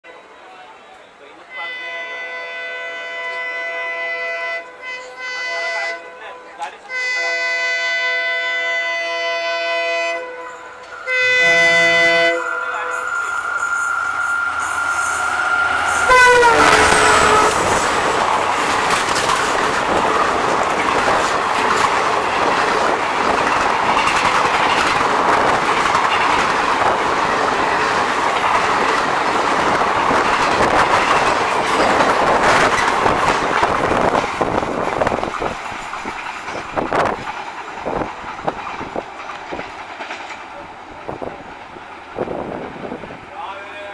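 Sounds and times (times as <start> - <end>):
diesel locomotive horn blasts: 1.5 - 18.1
train rushing past: 6.6 - 43.9.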